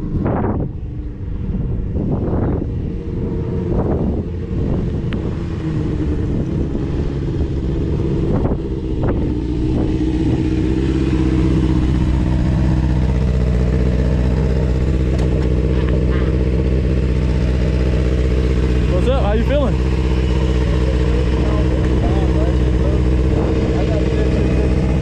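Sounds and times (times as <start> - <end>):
motorcycle engine running: 0.0 - 25.0
engine knocks: 11.4 - 25.0.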